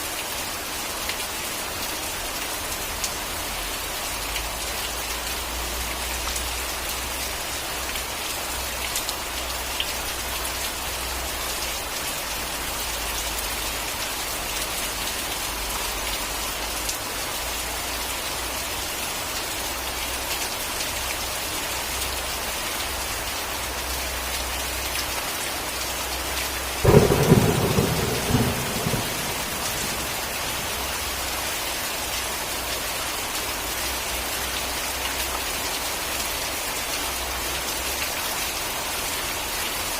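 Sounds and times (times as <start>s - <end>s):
heavy rain falling: 0.0s - 39.9s
thunderclap rumbling: 26.8s - 30.8s.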